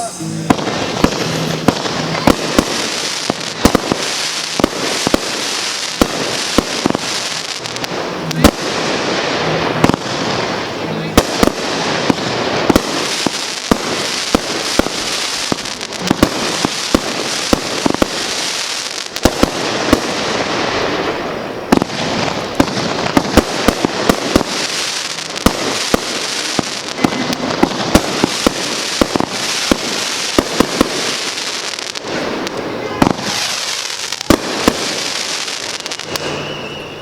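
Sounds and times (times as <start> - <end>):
continuous fireworks hiss: 0.0 - 37.0
fireworks popping: 0.0 - 37.0.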